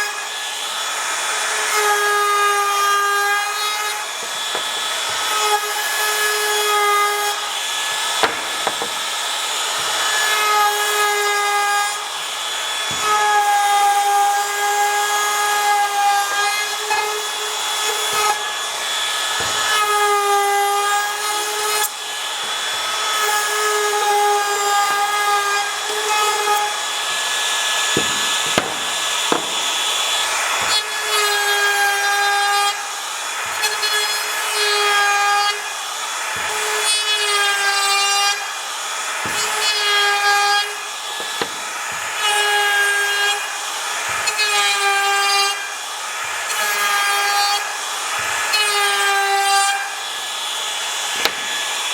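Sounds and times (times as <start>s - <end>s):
power tool whining on wood: 0.0s - 51.9s
knocks: 4.1s - 5.5s, 8.2s - 10.1s, 27.9s - 30.8s, 41.2s - 42.1s, 51.2s - 51.7s.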